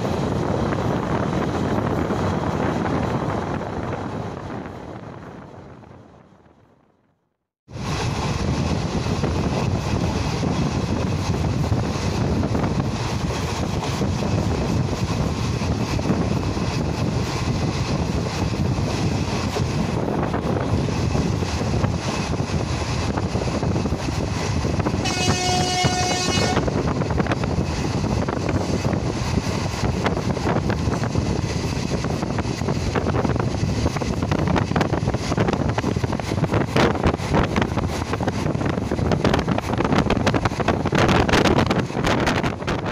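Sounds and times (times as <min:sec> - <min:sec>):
train wheels rumbling on rails: 0:00.0 - 0:06.9, 0:07.7 - 0:42.9
wind buffeting microphone: 0:00.0 - 0:07.0, 0:07.7 - 0:42.9
train horn: 0:25.0 - 0:26.8.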